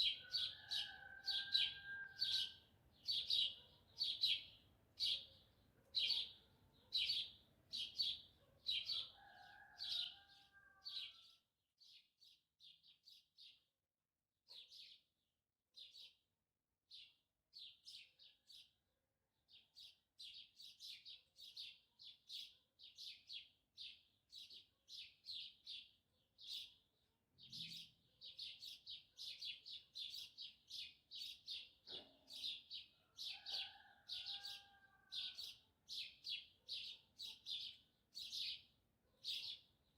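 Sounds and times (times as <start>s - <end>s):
distant rooster crowing: 0.0s - 2.6s, 8.8s - 11.4s, 33.0s - 35.5s.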